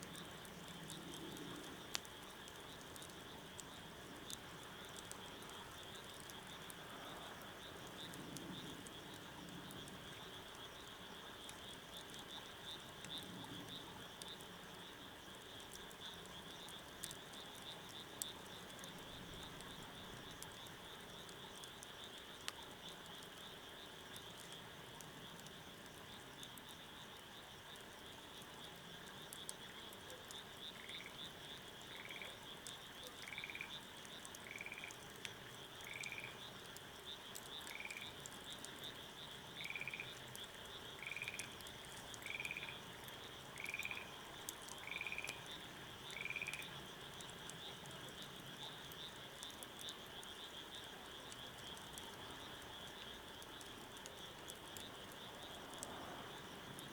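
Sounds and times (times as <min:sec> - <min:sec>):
faint scattered clicks: 0:00.0 - 0:56.9
frog croaking: 0:30.7 - 0:31.2, 0:31.9 - 0:32.4, 0:33.2 - 0:35.0, 0:35.8 - 0:36.5, 0:37.5 - 0:38.2, 0:38.9 - 0:40.2, 0:40.9 - 0:49.2.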